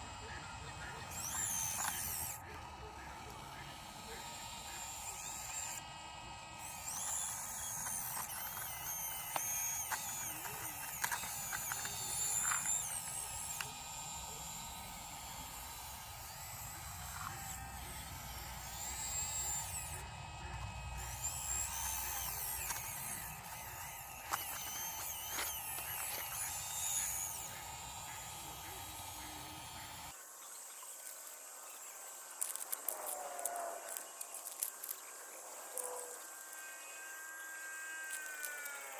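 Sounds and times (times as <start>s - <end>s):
toy excavator motors whining: 0.0s - 30.2s, 30.9s - 38.9s
clicks and scrapes in gravel: 6.9s - 13.6s, 21.0s - 27.6s, 32.4s - 35.9s.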